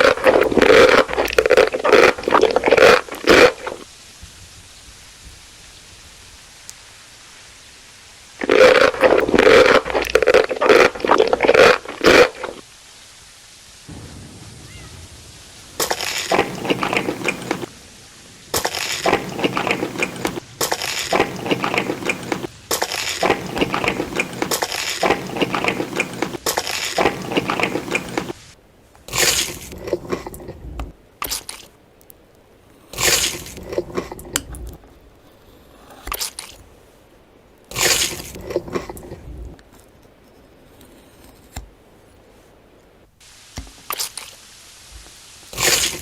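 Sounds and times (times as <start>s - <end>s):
crunching and chewing crispy food: 0.0s - 3.8s, 8.4s - 12.6s, 15.8s - 17.7s, 18.5s - 28.4s, 29.1s - 30.7s, 32.9s - 34.8s, 37.7s - 39.3s, 45.5s - 46.0s.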